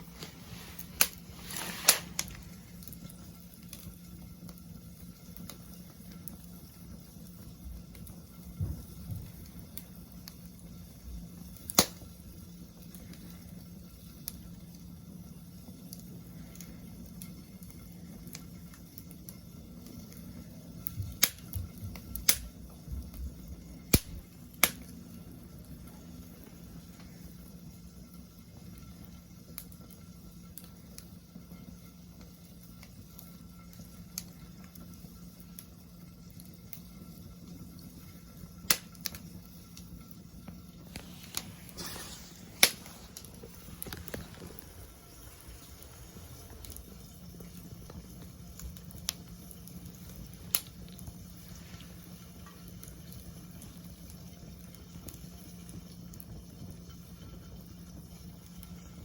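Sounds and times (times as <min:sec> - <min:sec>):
low rustle of flames: 0:00.0 - 0:59.0
wood fire crackling and popping: 0:00.0 - 0:59.0
sharp fire pops: 0:00.1 - 0:03.9, 0:11.4 - 0:13.3, 0:20.8 - 0:23.1, 0:23.8 - 0:25.0, 0:38.6 - 0:39.3, 0:40.5 - 0:52.0.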